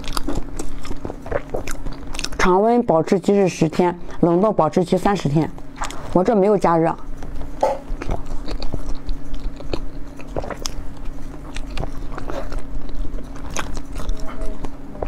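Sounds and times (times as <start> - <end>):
chewing sponge cake: 0.0 - 4.3, 5.4 - 15.0
crackly mouth clicks: 8.0 - 15.0.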